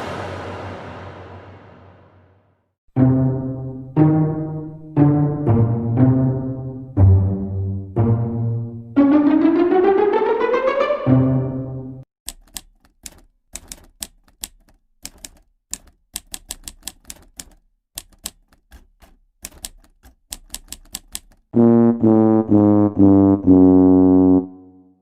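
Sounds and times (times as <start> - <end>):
rising musical tone: 8.0 - 12.0
typewriter keys clacking: 12.3 - 21.6.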